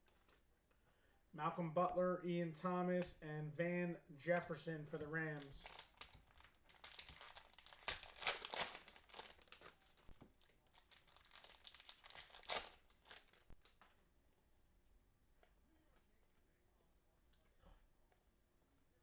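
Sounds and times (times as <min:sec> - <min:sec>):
cellophane wrapper crinkling: 0:05.3 - 0:14.0.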